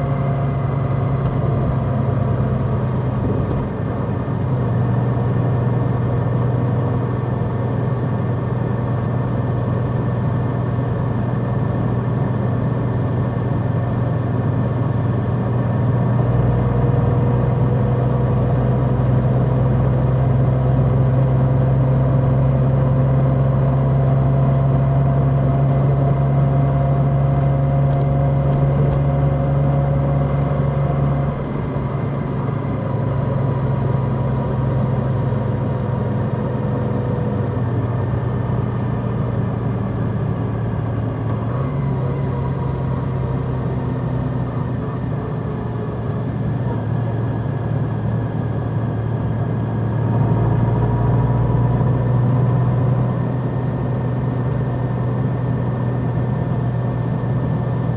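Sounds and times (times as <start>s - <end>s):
motorcycle engine humming: 0.0s - 8.4s, 25.5s - 49.9s.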